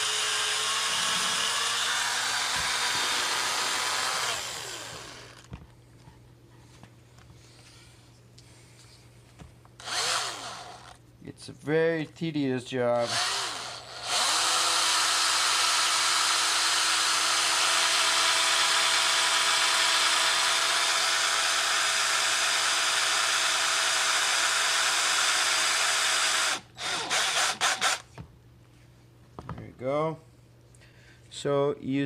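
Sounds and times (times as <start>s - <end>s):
small power tool motor running: 0.0s - 5.5s, 9.8s - 11.0s, 13.1s - 28.0s.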